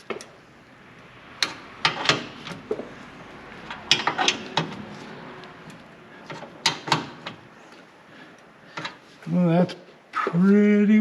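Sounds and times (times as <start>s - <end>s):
metal parts clanking: 3.7s - 5.0s.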